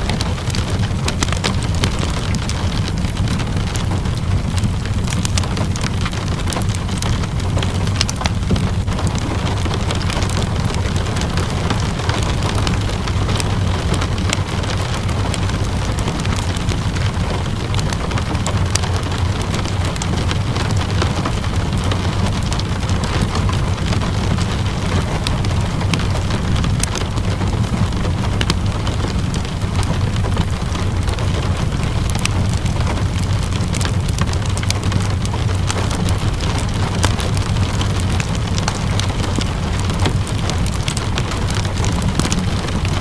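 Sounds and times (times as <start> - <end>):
steady rain: 0.0 - 43.0
wood fire crackling: 0.0 - 43.0.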